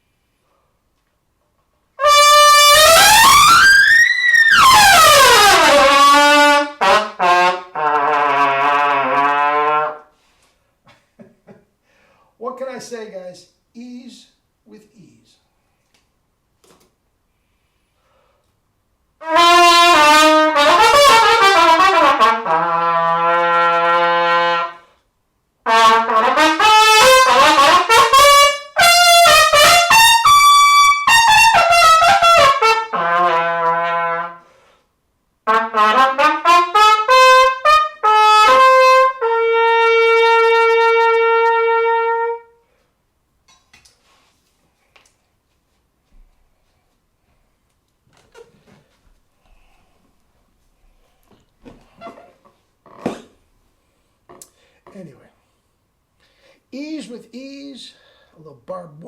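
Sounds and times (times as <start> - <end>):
solo trumpet playing: 2.0 - 10.2, 19.2 - 24.9, 25.6 - 34.5, 35.4 - 42.7.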